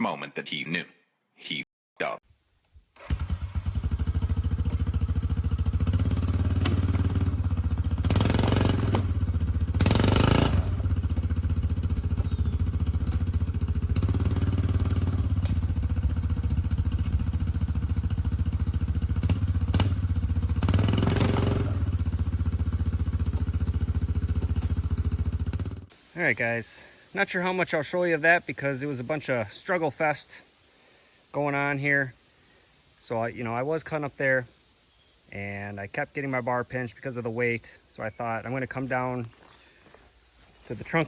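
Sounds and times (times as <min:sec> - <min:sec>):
small engine running: 0:03.0 - 0:25.8.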